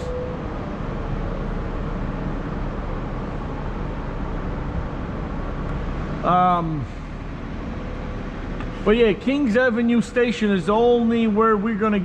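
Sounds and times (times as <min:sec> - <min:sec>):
city street hiss: 0:00.0 - 0:10.6.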